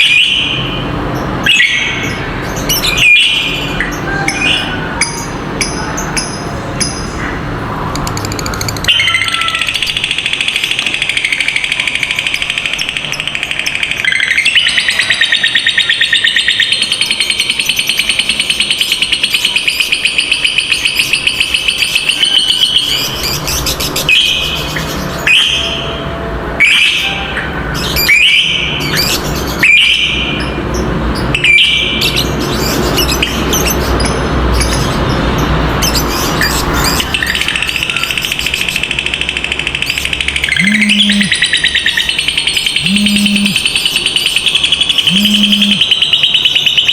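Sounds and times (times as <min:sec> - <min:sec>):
lovebirds chattering trill: 0:01.5 - 0:25.8, 0:26.6 - 0:46.9
lovebirds short sharp calls: 0:40.5 - 0:41.4, 0:42.8 - 0:43.6, 0:45.0 - 0:45.9.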